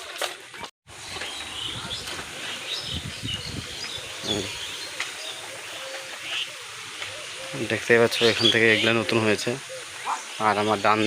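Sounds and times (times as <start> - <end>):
small birds chirping: 0.9 - 11.0
wind buffeting microphone: 1.0 - 5.0.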